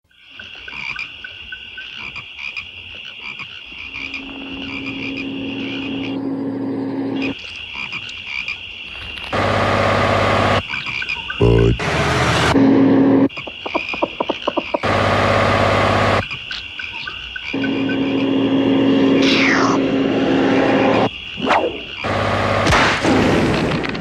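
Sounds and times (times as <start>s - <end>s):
frogs and insects chorus: 0.1s - 11.8s, 12.6s - 15.0s, 15.9s - 22.9s
deep croak-like sound: 2.0s - 8.6s, 10.4s - 14.9s
steady high trill: 17.6s - 22.6s.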